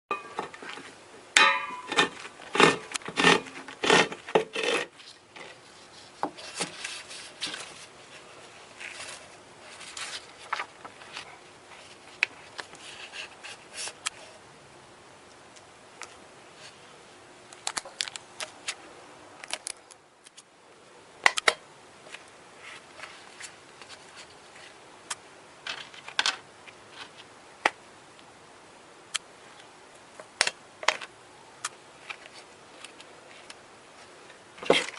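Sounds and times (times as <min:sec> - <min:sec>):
small parts and tools handled: 0:25.6 - 0:27.3.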